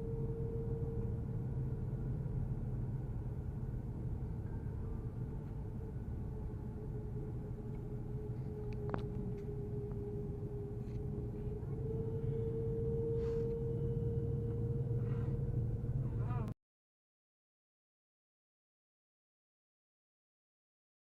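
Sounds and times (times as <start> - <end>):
aircraft cabin rumble: 0.0 - 16.6
steady whine: 0.0 - 16.6.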